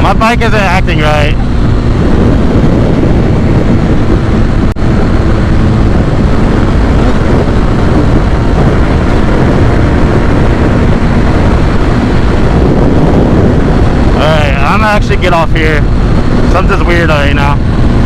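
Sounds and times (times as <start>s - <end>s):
man talking: 0.0s - 1.4s, 14.2s - 15.8s, 16.5s - 17.6s
motorcycle engine running: 0.0s - 18.0s
wind rush on microphone: 0.0s - 18.0s.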